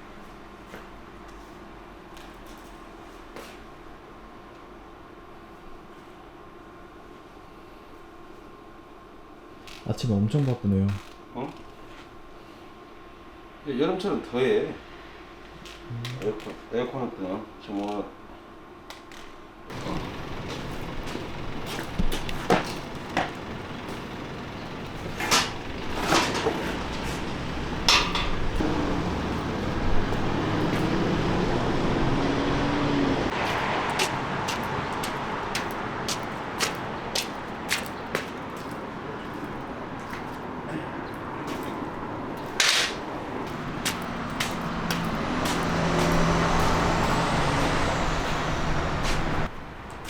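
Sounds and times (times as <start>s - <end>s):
metal clanks and knocks: 19.7s - 29.1s
vehicle rumble: 19.7s - 50.0s.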